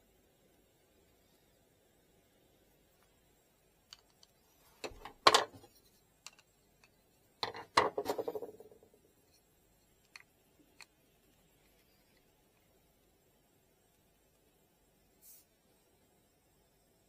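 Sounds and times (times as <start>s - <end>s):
objects knocking and clattering: 4.8s - 6.4s, 7.4s - 9.0s
small hard objects clicking: 6.2s - 8.9s.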